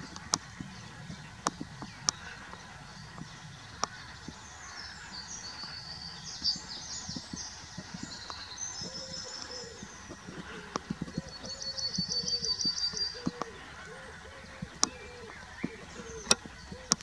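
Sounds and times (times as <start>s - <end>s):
songbird twittering: 0.0s - 17.0s
faint sharp clicks: 1.4s - 4.4s, 6.4s - 13.6s, 14.5s - 17.0s.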